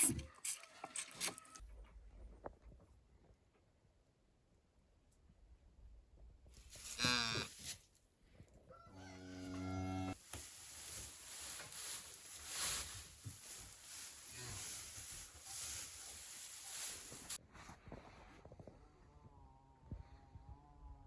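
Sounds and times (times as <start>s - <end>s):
cow mooing: 8.9s - 10.2s
rustling scraping noise: 10.2s - 18.5s.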